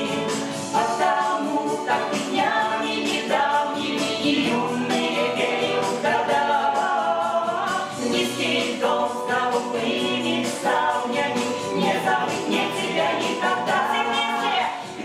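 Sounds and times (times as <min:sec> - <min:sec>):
group of voices singing: 0:00.0 - 0:15.0.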